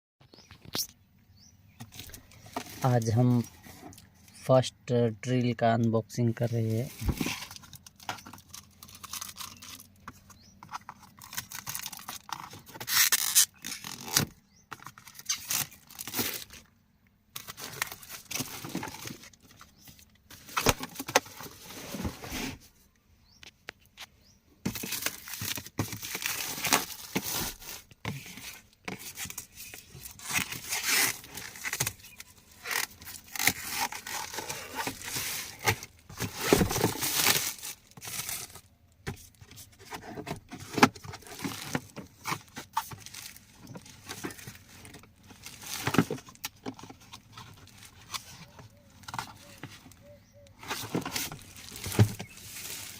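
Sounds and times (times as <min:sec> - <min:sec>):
packaging tearing and crinkling: 0:07.2 - 0:10.0, 0:10.9 - 0:16.7, 0:24.7 - 0:38.7, 0:40.8 - 0:49.7, 0:50.6 - 0:52.9.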